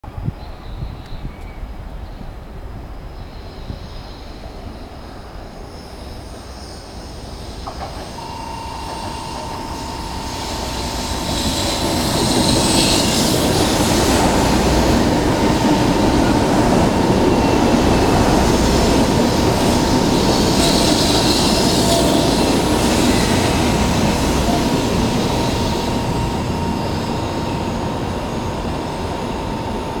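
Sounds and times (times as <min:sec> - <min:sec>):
train wheels rumbling on rails: 0:01.6 - 0:30.0
steady high tone: 0:08.0 - 0:30.0.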